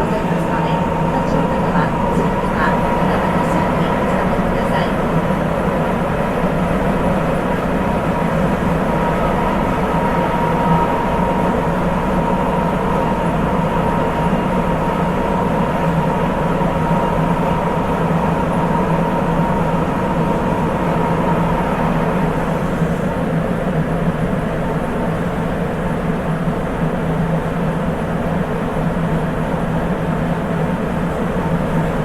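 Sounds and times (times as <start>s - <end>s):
train running noise: 0.0s - 32.0s.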